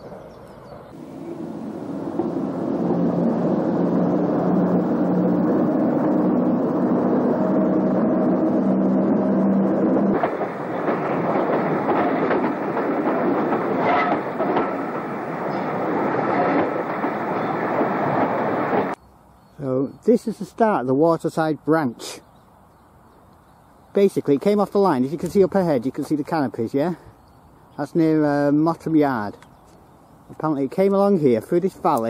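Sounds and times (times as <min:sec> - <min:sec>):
train passing: 0:00.0 - 0:19.3
wheels clicking over rails: 0:01.4 - 0:19.0.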